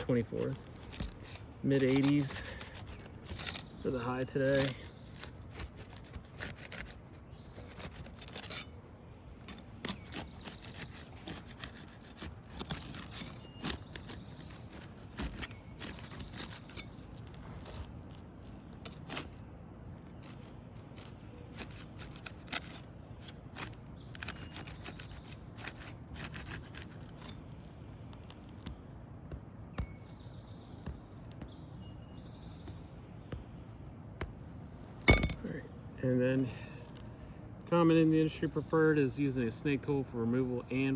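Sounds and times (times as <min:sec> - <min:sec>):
pry tool clicking and scraping shingles: 0:00.0 - 0:08.8, 0:09.4 - 0:28.8.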